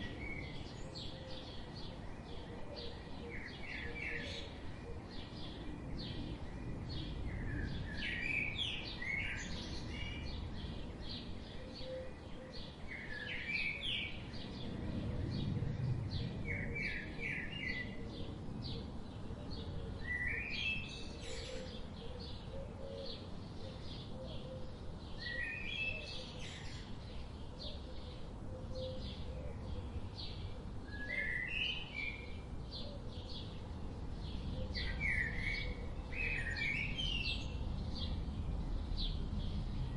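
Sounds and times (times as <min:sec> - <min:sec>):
low steady background rumble: 0:13.6 - 0:39.9
birds chirping and calling: 0:16.2 - 0:38.3.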